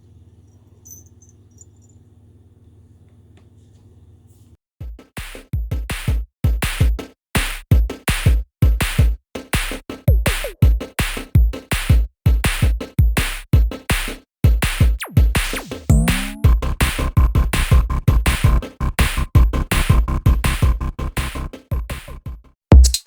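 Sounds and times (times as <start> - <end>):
electronic music with drum-machine beat: 4.8 - 23.0.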